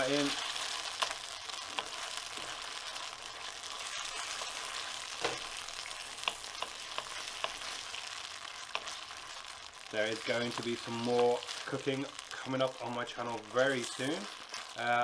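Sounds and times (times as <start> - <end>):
meat sizzling in a pan: 0.0 - 15.0
utensil clicking against pan: 5.2 - 7.8.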